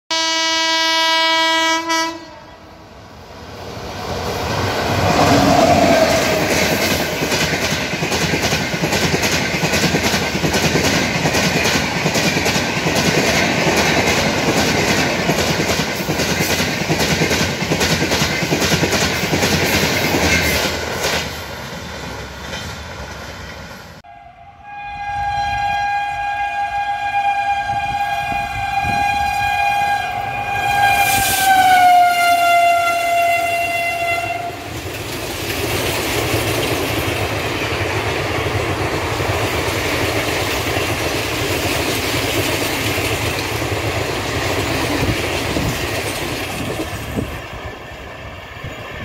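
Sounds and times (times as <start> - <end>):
locomotive horn: 0.1 - 2.8, 24.0 - 34.7
train wheels rushing on rail: 1.8 - 24.1, 25.5 - 49.0.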